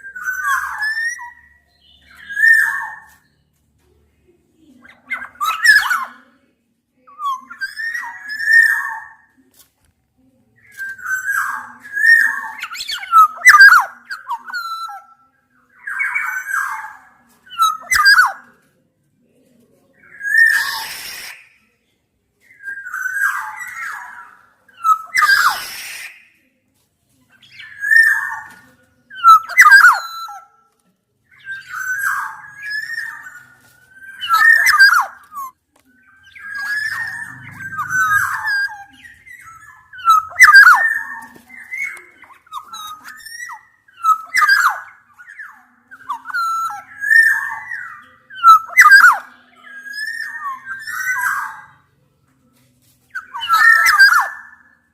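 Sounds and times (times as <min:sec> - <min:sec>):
birds whistling fluting phrases: 0:00.0 - 0:03.1, 0:05.2 - 0:06.1, 0:15.7 - 0:18.4, 0:20.1 - 0:21.6, 0:22.4 - 0:26.4, 0:29.2 - 0:30.5, 0:31.4 - 0:51.7, 0:53.1 - 0:54.8
harsh rasping bird notes: 0:31.5 - 0:44.6.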